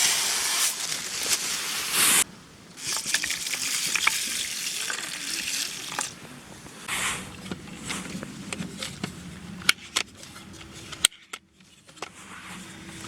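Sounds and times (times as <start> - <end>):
oysters sizzling over campfire: 0.0 - 6.2.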